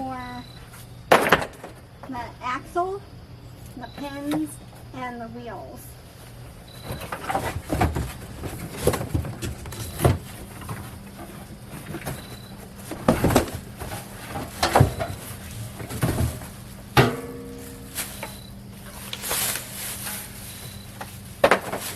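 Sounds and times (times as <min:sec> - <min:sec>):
grill parts knocking and clunking: 0:01.1 - 0:02.2, 0:06.7 - 0:21.9.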